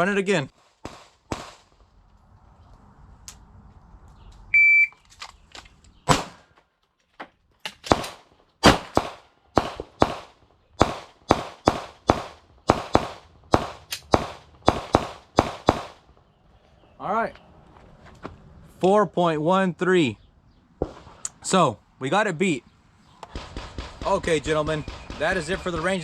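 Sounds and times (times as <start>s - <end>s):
pistol shots: 0.8s - 1.8s, 6.1s - 6.5s, 7.8s - 16.1s, 23.2s - 26.0s
shot timer beep: 4.5s - 5.0s.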